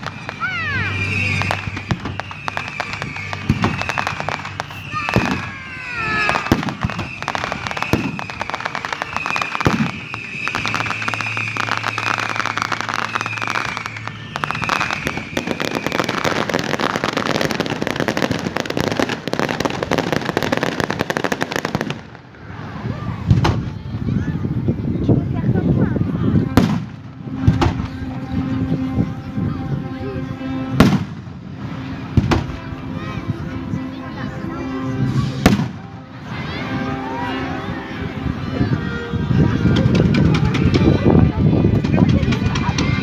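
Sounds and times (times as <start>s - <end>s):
high wavering whistle: 0.0s - 18.3s
fireworks bangs: 0.0s - 24.7s, 26.2s - 29.8s, 30.5s - 33.6s, 34.6s - 43.0s
rapid fireworks crackling: 0.0s - 43.0s.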